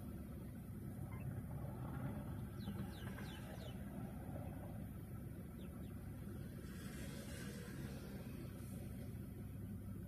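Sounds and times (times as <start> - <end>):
bird chirping: 1.1 - 4.7, 5.5 - 6.6.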